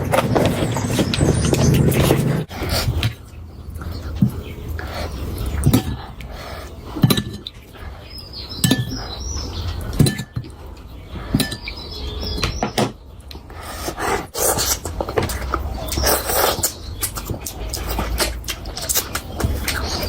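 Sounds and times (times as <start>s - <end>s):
eating noises: 0.0s - 11.8s, 13.2s - 20.0s
steady low hum: 0.0s - 12.4s.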